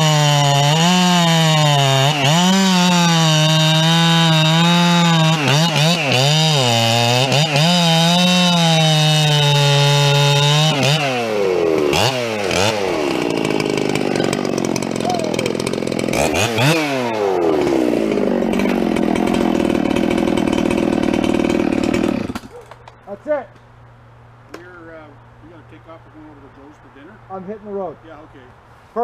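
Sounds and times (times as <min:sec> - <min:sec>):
chainsaw cutting log: 0:00.0 - 0:23.0.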